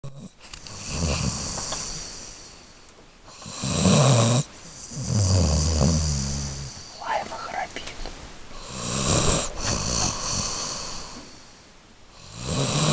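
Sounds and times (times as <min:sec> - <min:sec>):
dog snoring: 0:00.0 - 0:02.6, 0:03.3 - 0:07.2, 0:08.5 - 0:11.5, 0:12.1 - 0:12.9.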